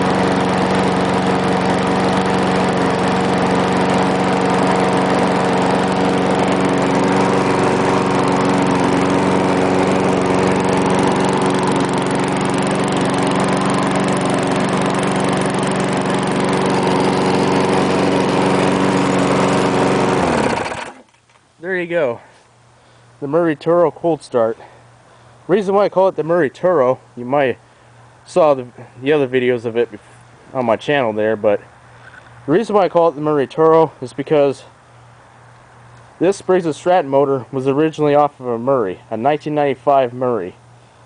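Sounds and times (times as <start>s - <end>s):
lawn mower engine running: 0.0s - 22.3s, 27.9s - 41.0s.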